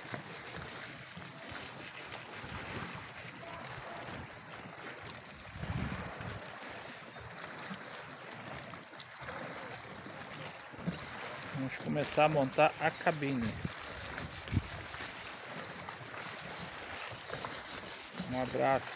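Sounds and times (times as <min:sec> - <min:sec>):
wind blowing across microphone: 0:05.4 - 0:06.4, 0:13.3 - 0:15.1.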